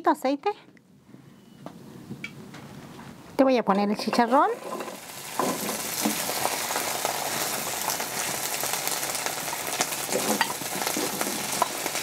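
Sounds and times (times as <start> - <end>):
meat sizzling in a frying pan: 4.4 - 12.0.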